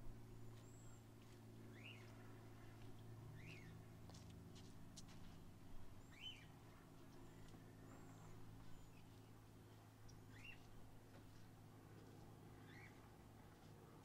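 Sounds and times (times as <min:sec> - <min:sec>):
steady low hum: 0:00.0 - 0:14.0
birds chirping: 0:00.2 - 0:03.9, 0:06.0 - 0:11.5, 0:12.6 - 0:13.6.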